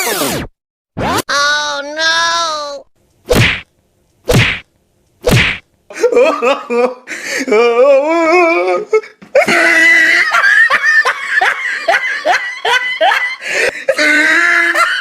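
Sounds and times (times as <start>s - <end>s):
person laughing hard: 9.4s - 15.0s.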